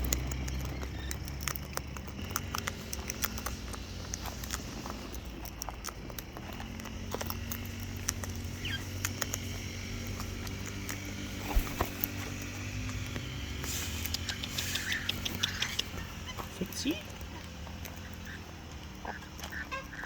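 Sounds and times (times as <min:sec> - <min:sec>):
bird pecking at food: 0:00.0 - 0:20.0
garden machinery drone: 0:00.0 - 0:20.0
high bird chirp: 0:08.6 - 0:09.0, 0:14.1 - 0:18.5.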